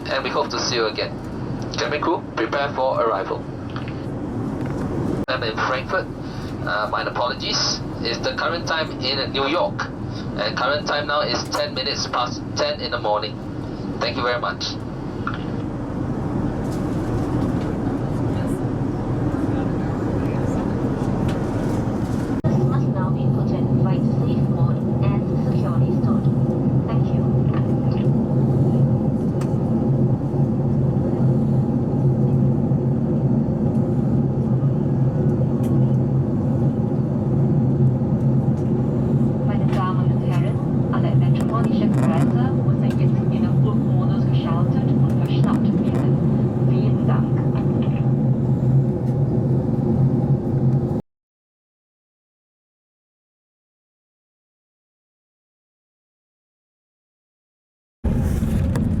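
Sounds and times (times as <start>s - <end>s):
airplane cabin rumble: 0.0s - 51.0s, 58.0s - 59.0s
engine and airflow drone: 0.0s - 51.0s, 58.0s - 59.0s.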